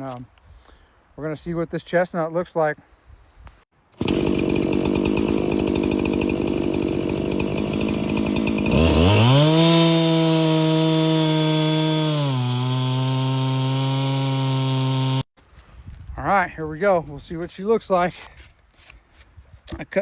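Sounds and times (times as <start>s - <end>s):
chainsaw idling and revving: 4.0s - 15.3s.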